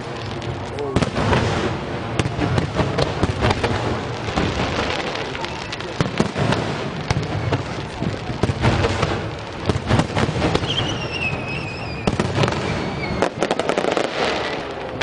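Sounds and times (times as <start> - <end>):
fireworks bangs and crackling: 0.0 - 15.0
falling firework whistle: 10.0 - 15.0.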